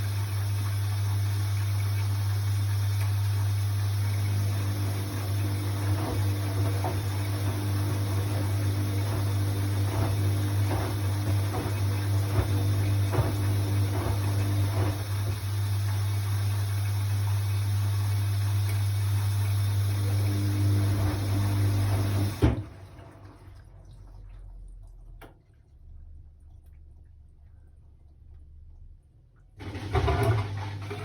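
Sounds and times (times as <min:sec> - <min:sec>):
pump cutting off with clunk: 0:00.0 - 0:23.5, 0:29.6 - 0:31.0
drain pump humming: 0:00.0 - 0:24.0, 0:29.6 - 0:31.0
water gurgling: 0:00.0 - 0:24.8.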